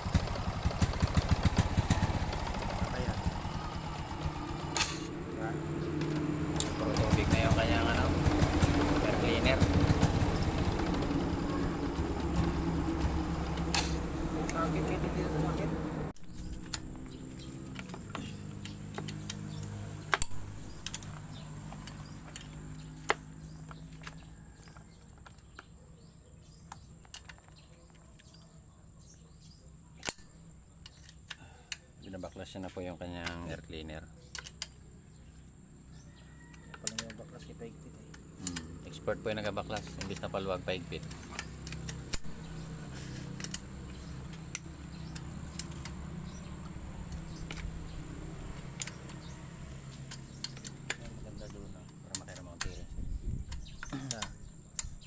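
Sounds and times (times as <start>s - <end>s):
hand tools clicking on metal: 36.7s - 37.2s, 38.0s - 40.4s, 53.5s - 55.0s.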